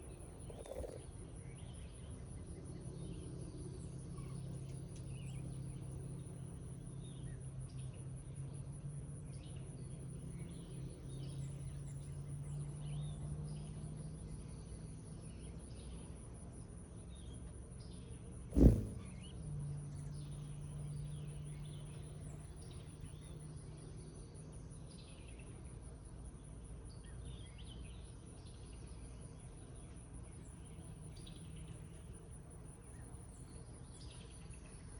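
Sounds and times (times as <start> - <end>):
low steady hum: 0.0 - 25.2
sharp knock: 18.6 - 19.2
short bird chirps: 18.6 - 19.3.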